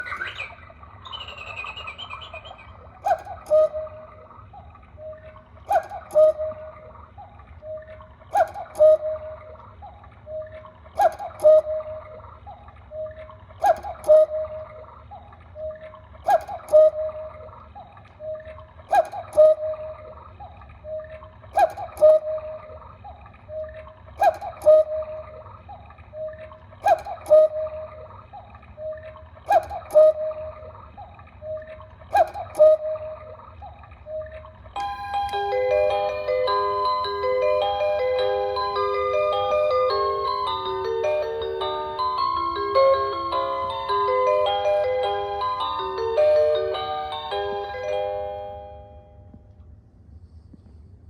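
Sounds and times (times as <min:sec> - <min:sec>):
two-note cuckoo call: 0:00.0 - 0:04.2, 0:05.0 - 0:06.9, 0:07.6 - 0:09.6, 0:10.3 - 0:12.1, 0:12.9 - 0:14.8, 0:20.9 - 0:22.7, 0:26.2 - 0:28.1, 0:31.4 - 0:33.3, 0:34.1 - 0:49.2
cuckoo clock click: 0:32.1 - 0:32.8, 0:34.8 - 0:40.5.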